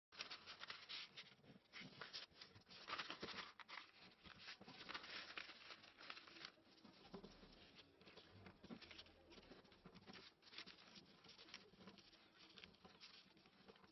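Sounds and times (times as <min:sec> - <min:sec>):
paper rustling and creasing: 0:00.1 - 0:13.9.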